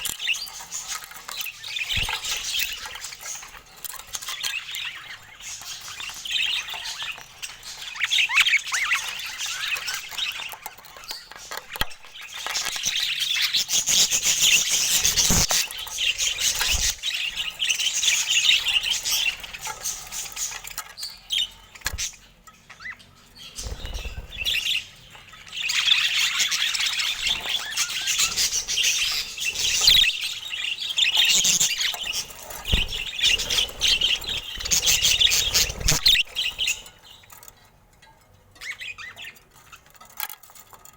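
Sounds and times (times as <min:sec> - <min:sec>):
budgerigars chattering and chirping: 0:00.0 - 0:40.1.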